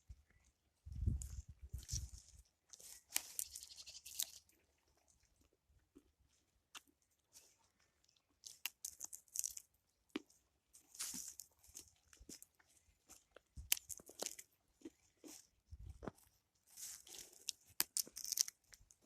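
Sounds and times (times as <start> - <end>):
faint crunching footsteps: 0.0 - 4.4, 10.7 - 17.6.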